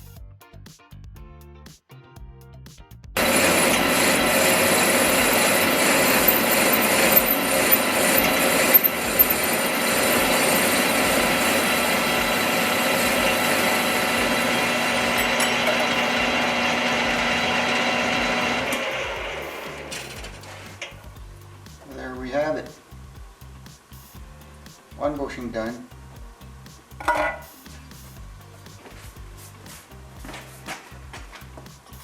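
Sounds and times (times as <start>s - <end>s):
metal lathe cutting brass: 3.2s - 20.9s.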